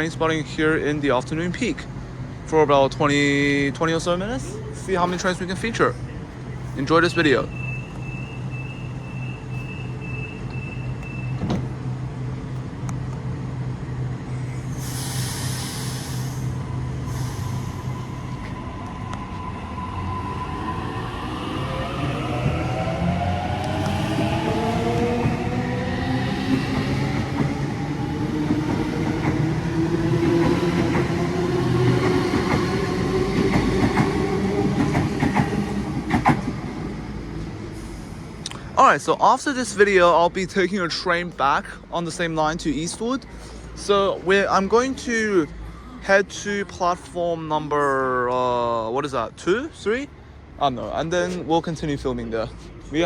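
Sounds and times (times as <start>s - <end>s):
electric train humming: 3.0s - 38.6s.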